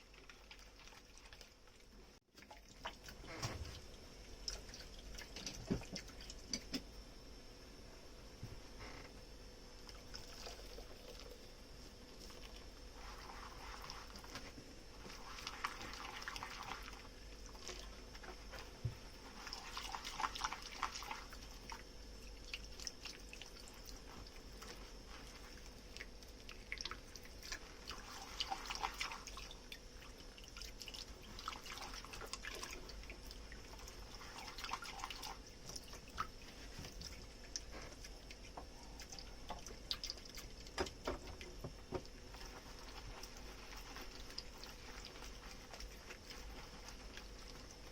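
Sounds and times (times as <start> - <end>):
water running at sink: 0.0 - 7.1, 9.7 - 47.9
faint steady hum: 0.0 - 47.9
dish clicks and drips: 2.3 - 6.9, 34.6 - 42.2
foamy scrubbing: 12.8 - 21.3, 41.8 - 47.9.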